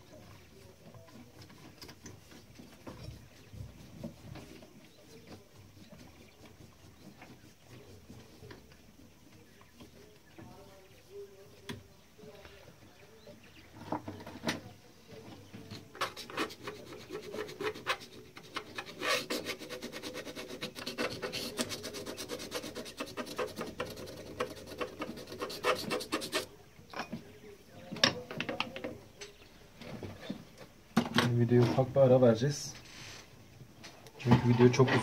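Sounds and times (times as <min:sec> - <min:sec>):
rapid scrubbing strokes: 0:00.4 - 0:10.1, 0:16.0 - 0:26.5.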